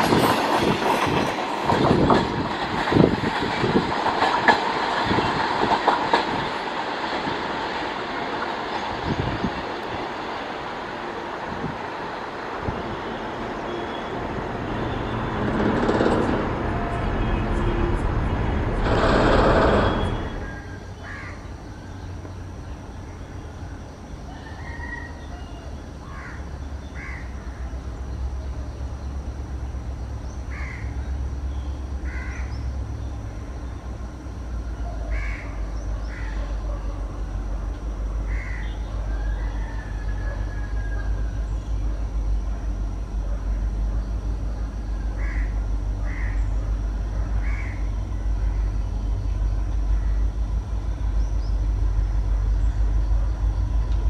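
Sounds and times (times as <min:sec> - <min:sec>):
distant locomotive rumble: 0:00.0 - 0:54.0
freight train passing: 0:00.0 - 0:54.0
crows cawing: 0:20.4 - 0:21.4, 0:26.0 - 0:26.4, 0:27.0 - 0:27.3, 0:30.5 - 0:30.9, 0:32.0 - 0:32.5, 0:35.1 - 0:36.4, 0:38.3 - 0:38.8, 0:45.1 - 0:46.6, 0:47.4 - 0:47.9.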